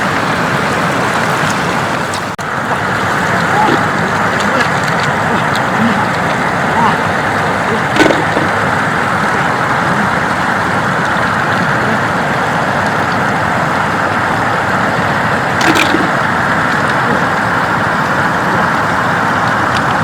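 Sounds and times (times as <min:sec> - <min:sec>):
flood water rushing over road: 0:00.0 - 0:20.0
short splash: 0:02.7 - 0:10.4, 0:15.6 - 0:17.3.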